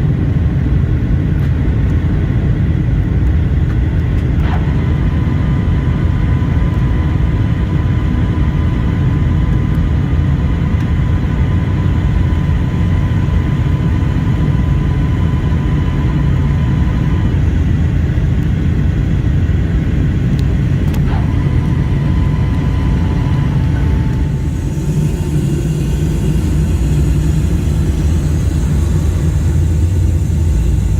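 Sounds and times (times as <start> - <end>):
aircraft cabin engine rumble: 0.0 - 30.9
faint thin whine: 4.4 - 18.2, 20.6 - 30.9.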